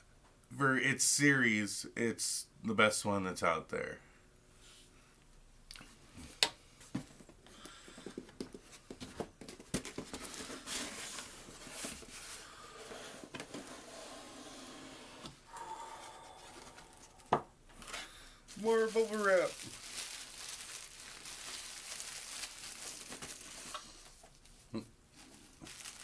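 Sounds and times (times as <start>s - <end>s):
plastic wrap rustling and crinkling: 8.4s - 13.8s, 16.0s - 26.0s.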